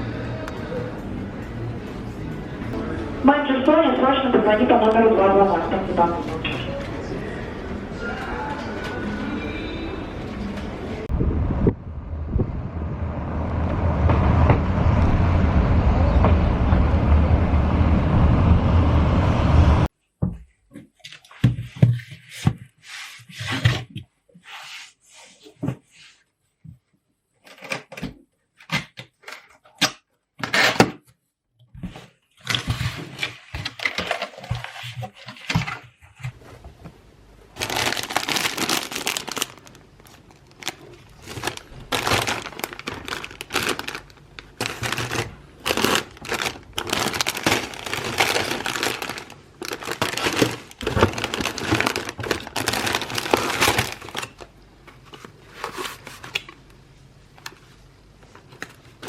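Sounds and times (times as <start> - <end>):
rustling and crinkling: 31.8 - 56.6.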